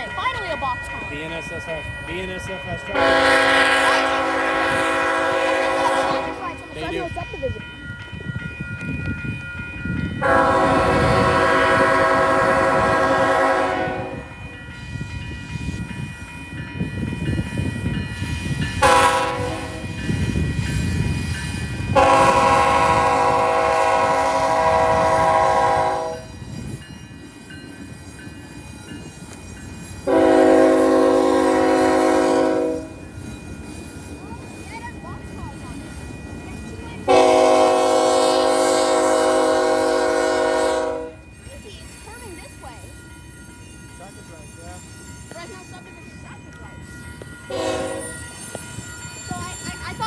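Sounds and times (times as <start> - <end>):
train rumble: 0.0 - 50.0
locomotive air horn blasts: 3.0 - 6.5, 10.2 - 14.4, 18.8 - 20.0, 22.0 - 26.4, 30.1 - 33.0, 37.1 - 41.2, 47.5 - 48.2.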